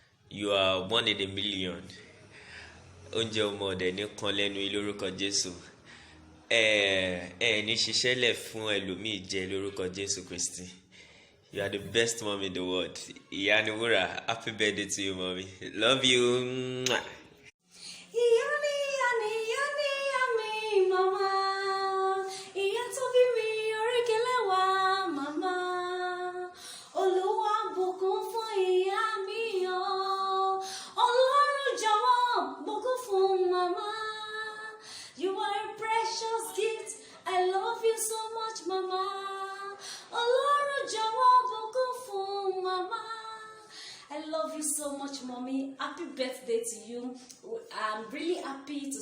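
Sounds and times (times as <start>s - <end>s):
person singing unaccompanied: 18.1s - 44.6s.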